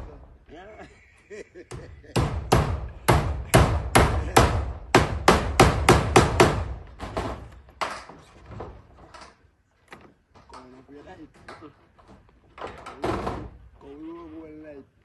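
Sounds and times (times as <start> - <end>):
hammer driving nails: 1.7 - 9.3.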